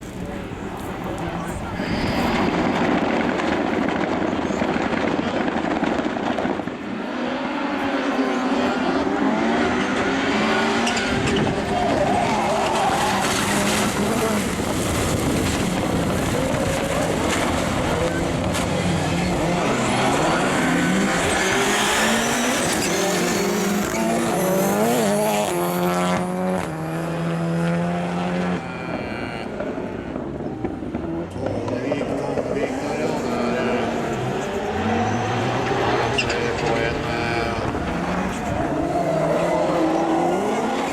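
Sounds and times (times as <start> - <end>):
race car engines revving: 0.0 - 40.9
tyre squeal: 19.2 - 25.0, 34.0 - 40.4.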